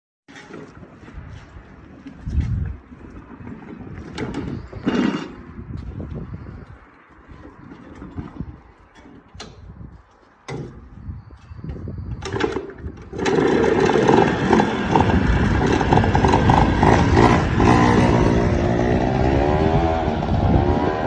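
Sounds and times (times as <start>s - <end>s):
engine running and revving: 13.0s - 21.0s.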